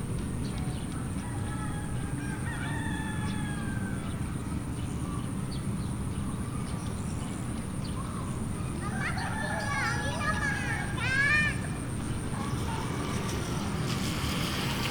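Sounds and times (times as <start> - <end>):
rooster crowing: 1.2 - 4.2
faint high whine: 10.8 - 14.9
steady low rumble: 11.4 - 14.9.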